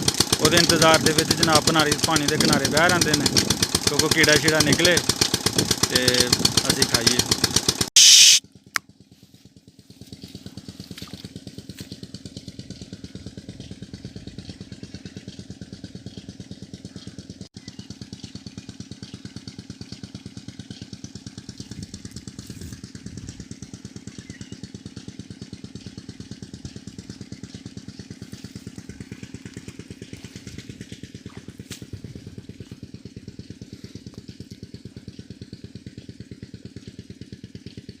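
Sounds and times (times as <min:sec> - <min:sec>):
diesel engine running: 0:00.0 - 0:08.1, 0:08.8 - 0:38.0.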